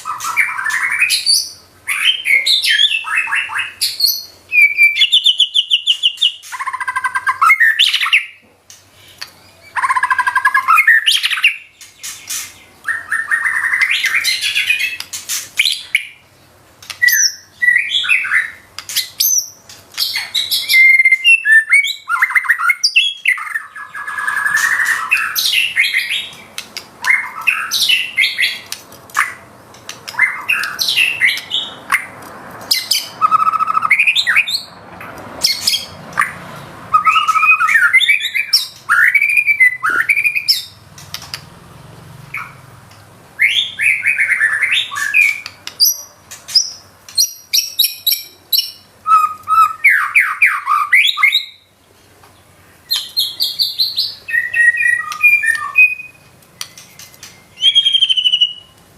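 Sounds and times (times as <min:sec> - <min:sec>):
bird singing whistles and trills: 0:00.0 - 0:08.4, 0:09.4 - 0:16.2, 0:16.9 - 0:26.4, 0:32.7 - 0:34.7, 0:36.9 - 0:40.8, 0:43.4 - 0:51.7, 0:52.9 - 0:58.8.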